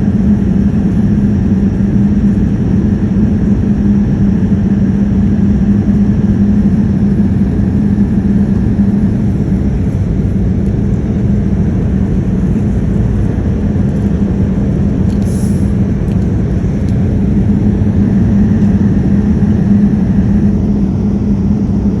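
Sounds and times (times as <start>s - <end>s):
airplane cabin engine drone: 0.0s - 22.0s.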